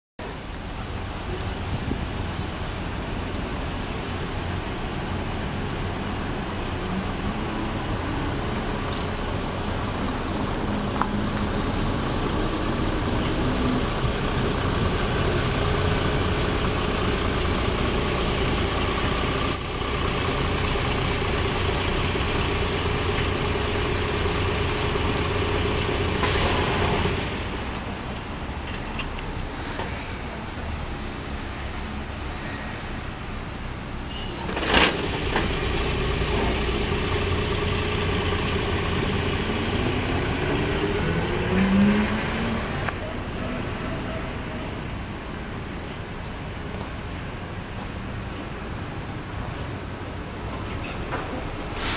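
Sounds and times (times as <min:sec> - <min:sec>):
bus engine hum and whine: 0:00.2 - 0:51.9
air brakes hissing: 0:25.5 - 0:27.7, 0:51.6 - 0:51.9.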